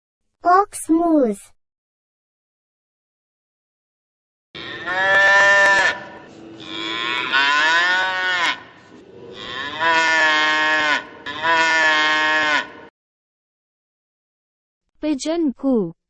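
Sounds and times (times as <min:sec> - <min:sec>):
ox mooing: 0:04.6 - 0:12.9.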